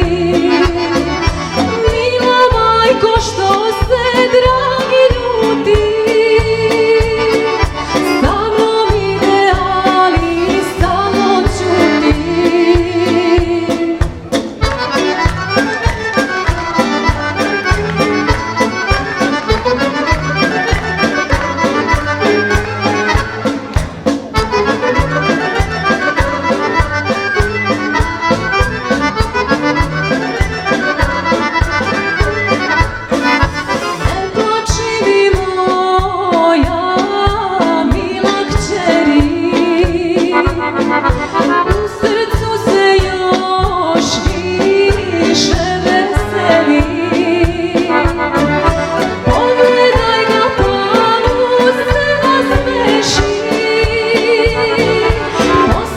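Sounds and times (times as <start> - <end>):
woman singing: 0.0 - 14.2, 34.0 - 55.9
accordion folk music: 0.0 - 55.9.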